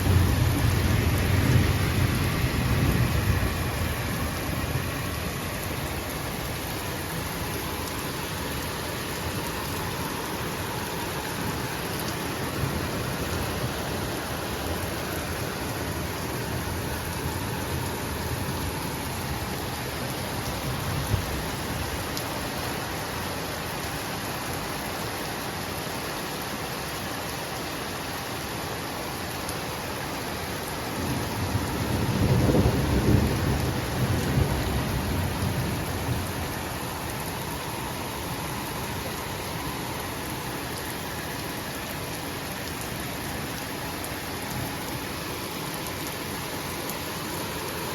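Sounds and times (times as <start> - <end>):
thunder rumble: 0.0 - 6.0, 31.4 - 36.5
heavy rain pouring: 0.0 - 47.9.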